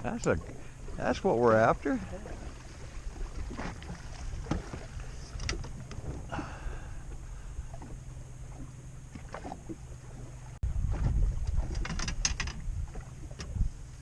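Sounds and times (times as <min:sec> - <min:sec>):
boat motor humming: 0:00.0 - 0:14.0
wind on microphone: 0:10.1 - 0:14.0.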